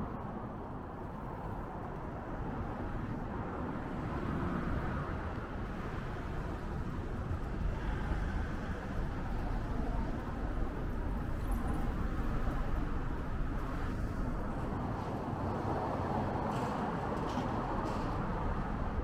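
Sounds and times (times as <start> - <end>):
low rumble of traffic: 0.0 - 19.0
wind and road noise: 0.0 - 19.0.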